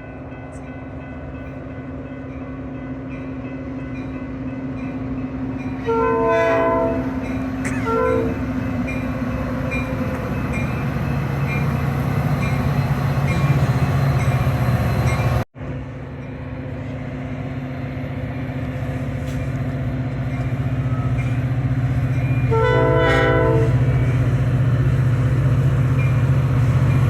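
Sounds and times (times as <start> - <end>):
diesel train engine hum: 0.0 - 27.0
train chime horn: 5.6 - 10.8, 22.2 - 24.3.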